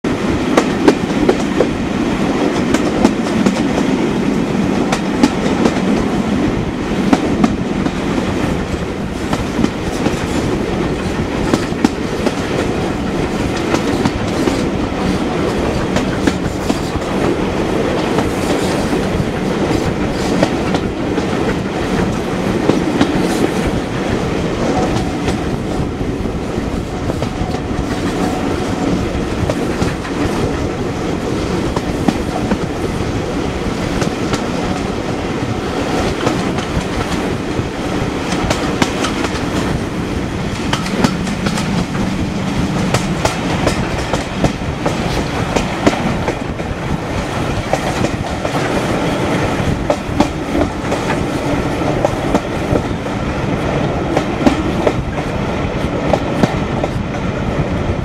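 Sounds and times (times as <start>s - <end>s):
train coaches rumbling: 0.0s - 58.0s
wheels clicking over rail joints: 38.2s - 49.0s.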